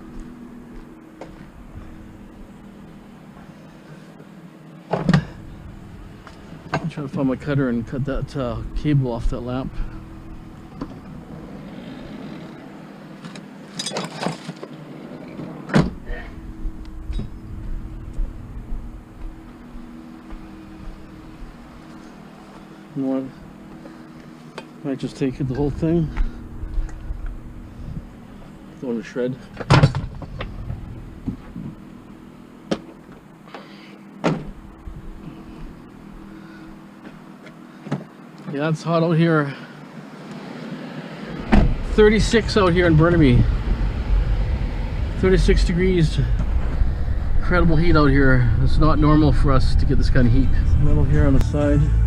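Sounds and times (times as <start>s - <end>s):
faint steady hum: 0.0s - 52.0s
vehicle engine idling: 5.2s - 13.2s, 15.9s - 38.3s, 39.2s - 52.0s
low rumble: 5.3s - 12.1s, 16.0s - 21.7s, 25.4s - 32.5s, 41.4s - 52.0s
metal tools clattering: 13.7s - 14.6s.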